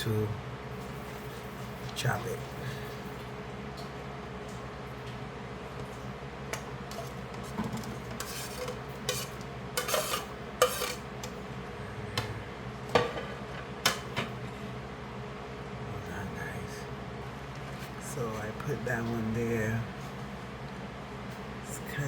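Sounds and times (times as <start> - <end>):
steady low hum: 0.0 - 22.0
utensil clinking against bowls: 6.9 - 11.4.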